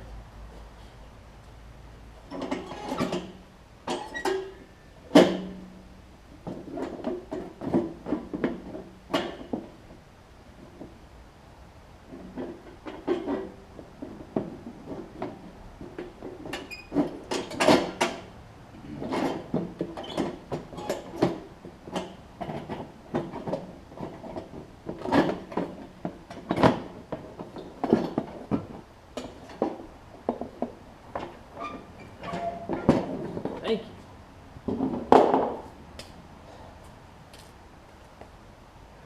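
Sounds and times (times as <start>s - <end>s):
metal clanks and rattles of tools: 2.3s - 5.6s, 12.1s - 18.3s, 19.0s - 33.6s.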